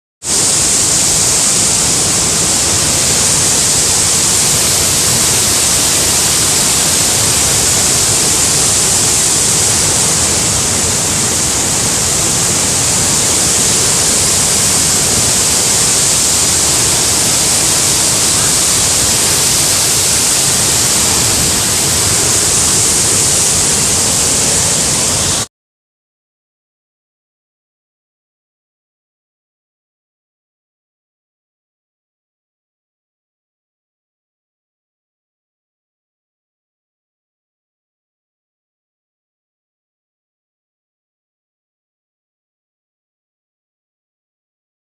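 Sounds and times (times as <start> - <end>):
waterfall rushing: 0.3 - 25.5.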